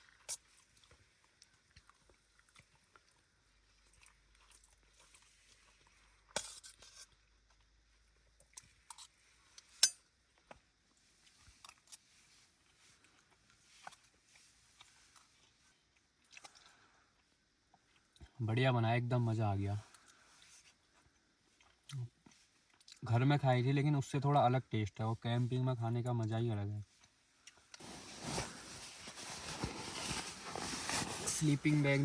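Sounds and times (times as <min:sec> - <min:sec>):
small clicks and rustles: 0:00.0 - 0:07.7, 0:08.4 - 0:18.3
quiet chewing: 0:00.0 - 0:07.8, 0:08.4 - 0:09.6, 0:10.3 - 0:18.4, 0:19.9 - 0:23.0, 0:26.9 - 0:27.9.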